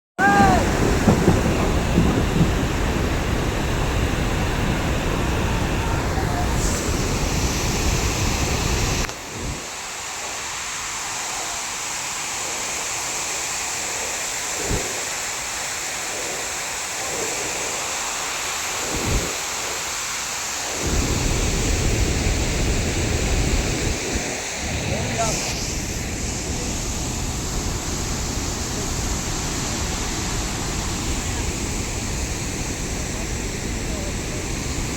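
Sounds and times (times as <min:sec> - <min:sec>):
wind buffeting microphone: 0:00.2 - 0:09.8, 0:13.8 - 0:17.9, 0:20.6 - 0:34.9
waterfall roaring: 0:00.2 - 0:34.9.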